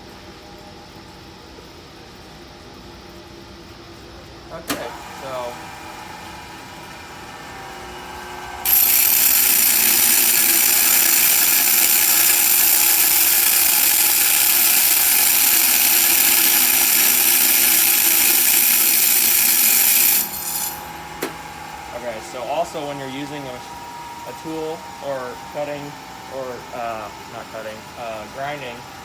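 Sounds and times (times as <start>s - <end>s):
bench grinder running: 5.2s - 22.9s.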